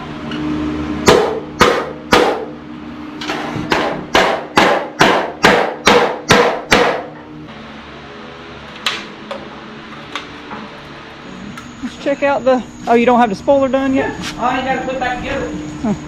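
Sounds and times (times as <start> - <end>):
steady low hum: 0.0 - 16.0
hammer striking metal: 1.0 - 2.5, 3.2 - 7.2.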